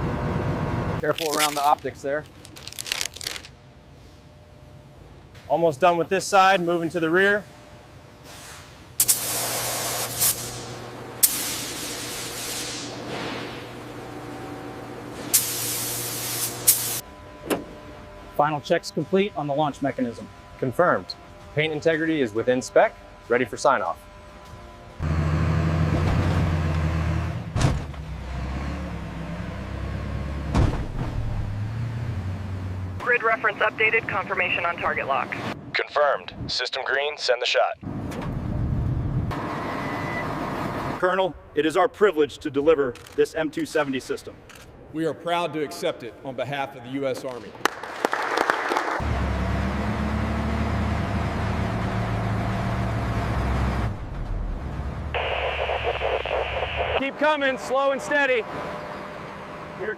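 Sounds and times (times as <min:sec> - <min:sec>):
vehicle engine droning: 0:16.6 - 0:33.1, 0:49.0 - 0:55.3.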